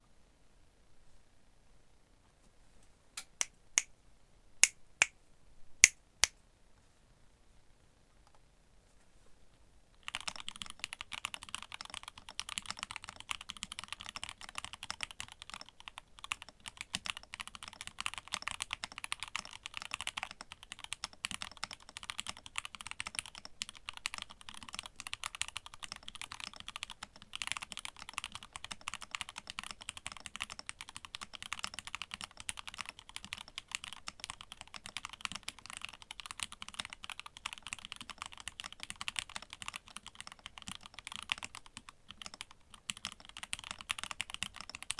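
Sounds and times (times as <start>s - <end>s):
fast mechanical keyboard typing: 10.0s - 44.9s.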